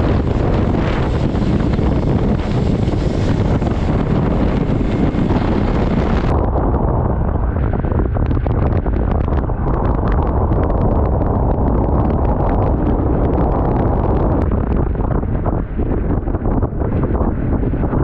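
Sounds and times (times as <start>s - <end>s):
motorcycle engine: 0.0s - 6.3s
wind roaring over microphone: 0.0s - 18.0s.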